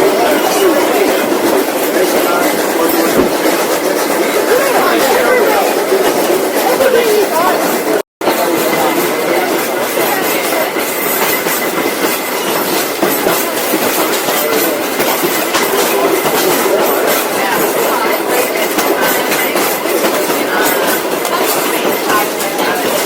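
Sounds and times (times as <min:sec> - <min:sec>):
train carriage rattling: 0:00.0 - 0:23.0
wheels clicking over rails: 0:00.0 - 0:23.0.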